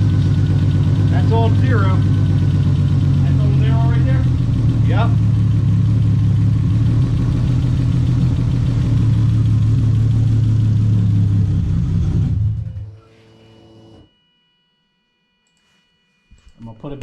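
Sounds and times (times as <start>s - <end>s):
car engine idling: 0.0s - 12.8s
engine shutting off: 0.0s - 13.2s.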